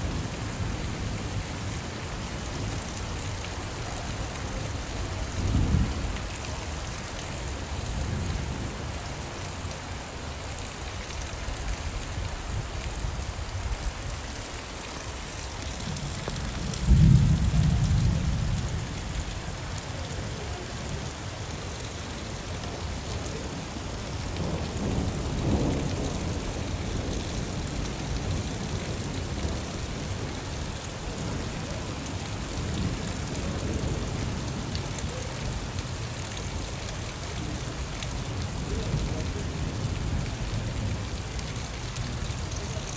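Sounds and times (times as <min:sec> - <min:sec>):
steady rain: 0:00.0 - 0:42.9
thunder rolling: 0:16.5 - 0:18.4.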